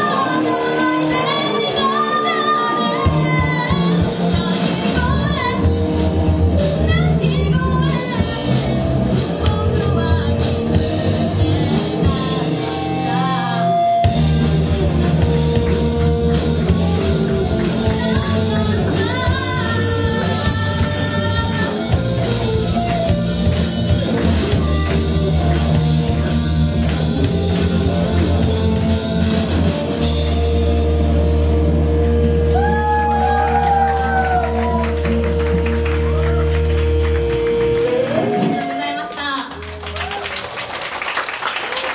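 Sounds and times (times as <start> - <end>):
person singing: 0.0 - 5.8, 6.8 - 14.2, 16.6 - 22.1
drum kit: 0.0 - 39.0
bass guitar: 0.0 - 40.7
electric guitar: 0.0 - 40.8.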